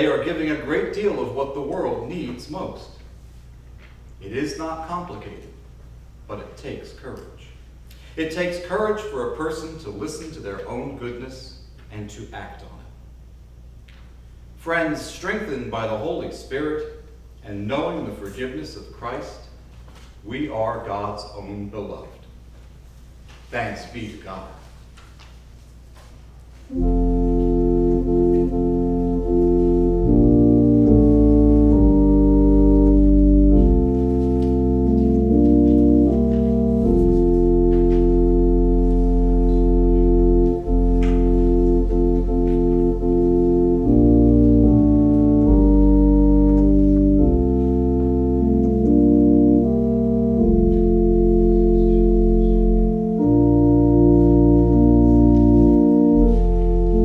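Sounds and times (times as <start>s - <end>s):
organ playing sustained chords: 0.0s - 3.0s, 26.7s - 57.0s.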